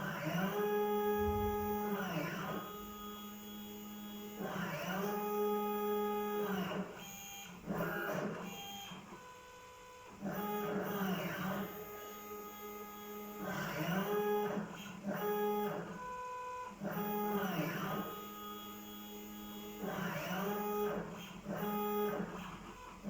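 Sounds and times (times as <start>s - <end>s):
stepper motors whining: 1.1s - 2.1s.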